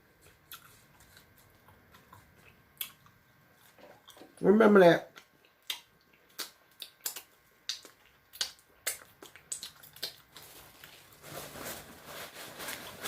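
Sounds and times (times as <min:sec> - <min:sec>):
chewing noise: 0:00.2 - 0:04.4, 0:05.1 - 0:10.9
wet mouth clicks and smacks: 0:05.2 - 0:10.3.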